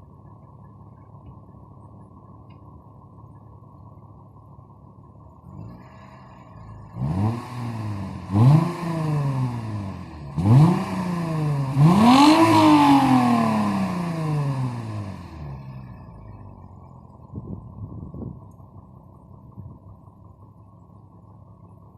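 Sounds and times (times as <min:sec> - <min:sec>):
car engine revving: 0:05.4 - 0:17.2.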